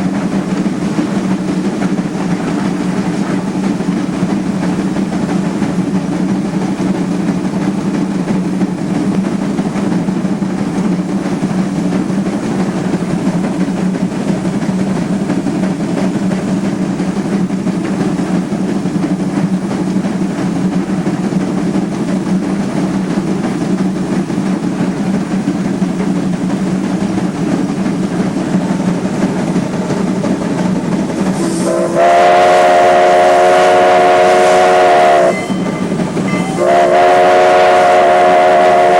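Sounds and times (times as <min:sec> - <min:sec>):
steam train running: 0:00.0 - 0:38.9
steam locomotive whistle: 0:31.4 - 0:38.9.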